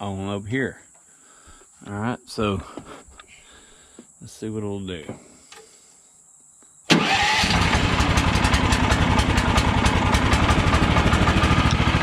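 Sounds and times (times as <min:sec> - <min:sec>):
gasoline engine starting and running: 0:06.9 - 0:12.0.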